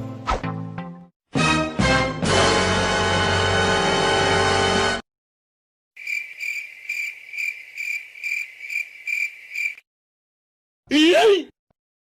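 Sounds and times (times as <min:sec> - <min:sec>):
music: 0:00.0 - 0:05.0
crickets chirping: 0:06.0 - 0:09.8.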